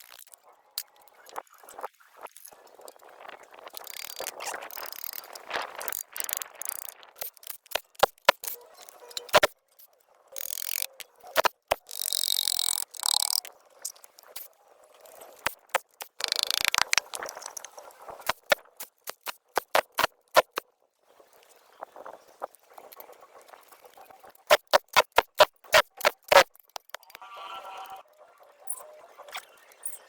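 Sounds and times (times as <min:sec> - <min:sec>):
sharp knocks and clicks: 0:05.9 - 0:08.6, 0:09.2 - 0:09.6, 0:10.4 - 0:14.5, 0:15.4 - 0:17.7, 0:18.3 - 0:20.6, 0:24.5 - 0:27.2.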